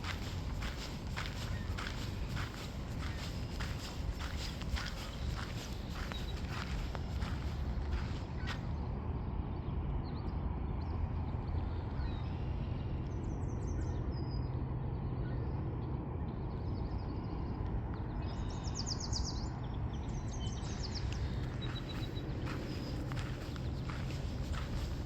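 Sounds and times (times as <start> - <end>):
small birds trilling: 0.0 - 8.7, 18.0 - 25.0
low outdoor rumble: 0.0 - 18.8, 19.4 - 25.0.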